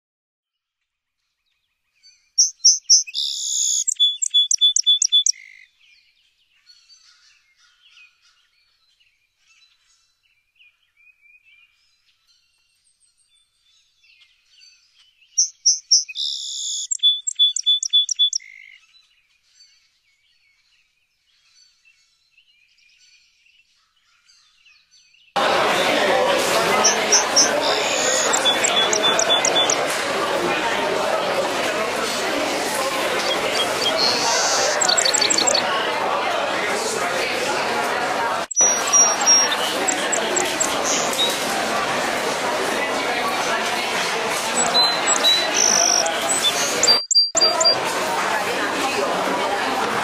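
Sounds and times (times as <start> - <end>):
songbird singing: 1.4 - 25.4, 26.3 - 30.0, 32.6 - 35.8, 38.4 - 41.4, 44.5 - 47.8
faint bird chirps: 2.0 - 8.8, 14.9 - 23.2, 26.7 - 29.9, 33.1 - 35.7, 38.4 - 41.4, 44.6 - 47.8.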